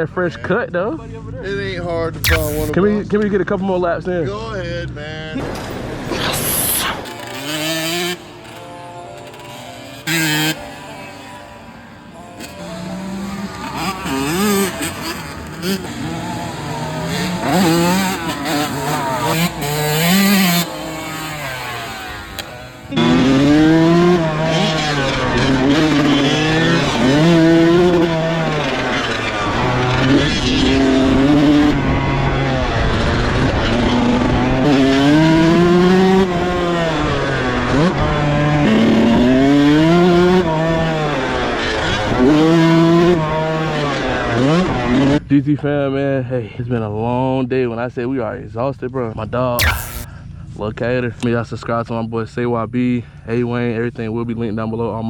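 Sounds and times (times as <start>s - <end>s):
dirt bike engine revving: 2.3s - 2.7s, 6.6s - 32.1s, 33.8s - 41.0s, 49.6s - 50.1s.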